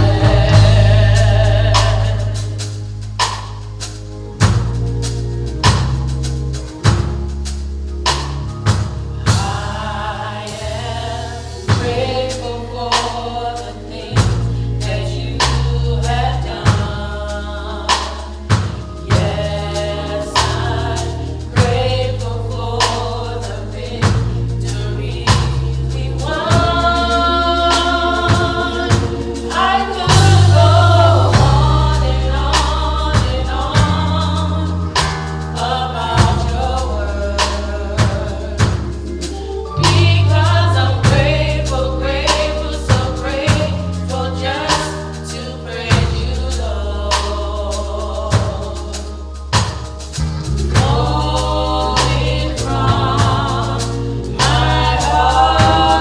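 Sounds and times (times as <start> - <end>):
drum hits: 0.0 - 2.3, 11.6 - 12.2, 26.5 - 35.4, 50.6 - 51.2, 52.0 - 53.8, 54.4 - 56.0
gospel choir singing: 0.0 - 56.0
steady bass line: 0.0 - 56.0.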